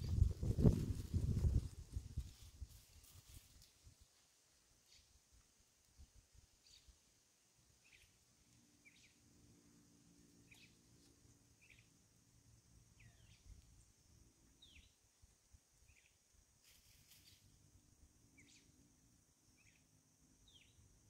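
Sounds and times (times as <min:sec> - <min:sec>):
faint bird chirps: 0:04.8 - 0:05.4, 0:06.3 - 0:21.0.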